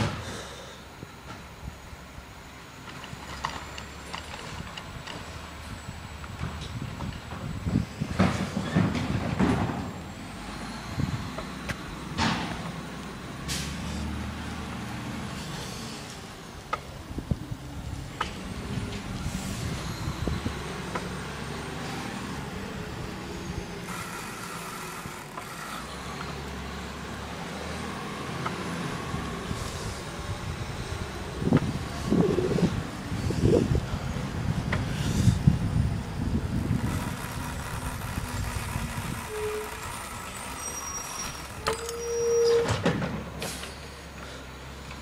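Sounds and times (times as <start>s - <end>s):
garbage truck running: 0.0s - 45.0s
knocks and clatter: 6.4s - 10.0s, 42.6s - 43.7s.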